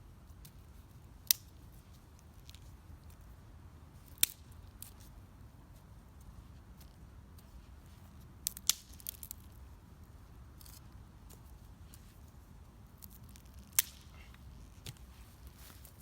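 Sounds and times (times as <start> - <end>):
wood fire crackling: 8.5 - 9.4, 13.2 - 16.0.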